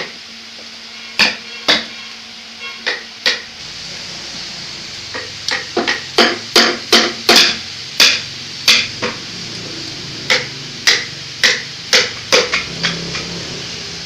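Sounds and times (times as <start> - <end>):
hammer striking wood: 5.5 - 9.2, 10.3 - 13.0.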